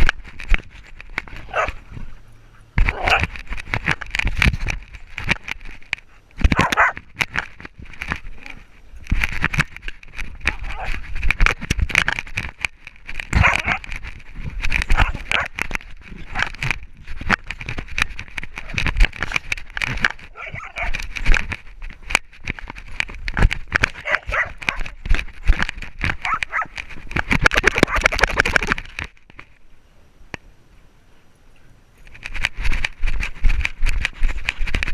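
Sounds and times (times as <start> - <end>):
dog: 1.5 - 1.8, 6.6 - 7.0, 13.4 - 13.8, 20.3 - 21.0, 24.0 - 25.0, 26.2 - 26.7.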